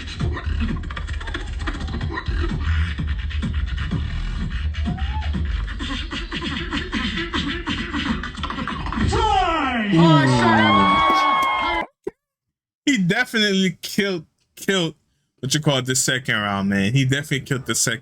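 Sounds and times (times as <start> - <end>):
beatboxing: 0.0 - 9.1.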